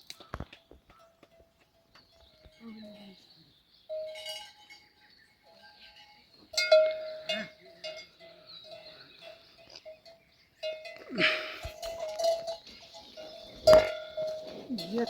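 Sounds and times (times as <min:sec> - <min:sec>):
metal neck bell clanking: 0:03.9 - 0:04.9, 0:05.5 - 0:15.0.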